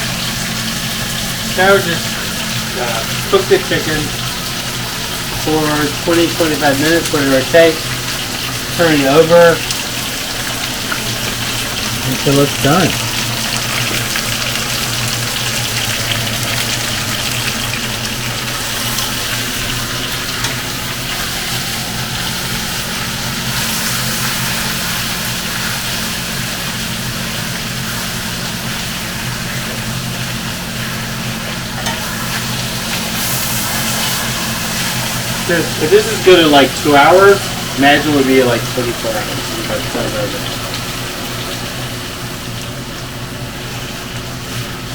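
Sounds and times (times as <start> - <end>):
chicken sizzling in a pan: 0.0 - 44.9.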